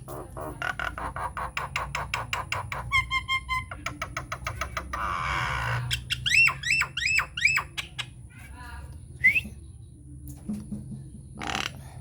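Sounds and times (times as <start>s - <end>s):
myna bird calling: 0.4s - 8.2s.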